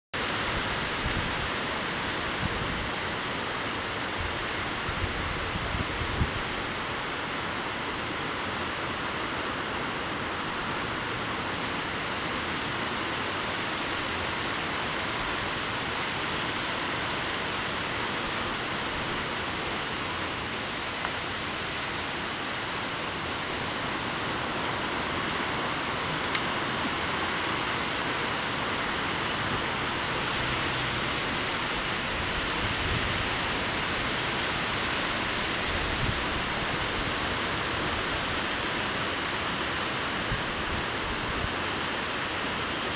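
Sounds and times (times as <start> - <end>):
heavy rain: 0.2 - 42.9
wind gusts: 0.2 - 42.9.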